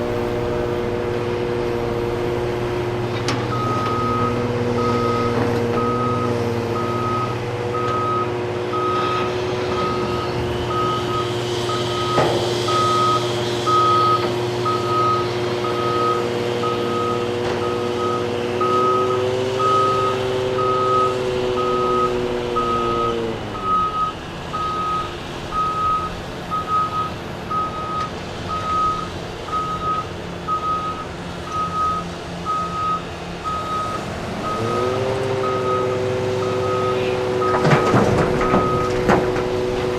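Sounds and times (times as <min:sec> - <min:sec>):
diesel engine running: 0:00.0 - 0:39.9
backup alarm beeping: 0:03.5 - 0:20.0, 0:20.6 - 0:39.0.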